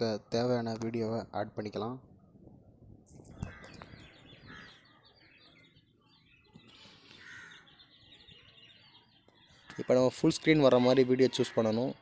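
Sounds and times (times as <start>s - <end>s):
faint bird chirps: 3.2s - 12.0s.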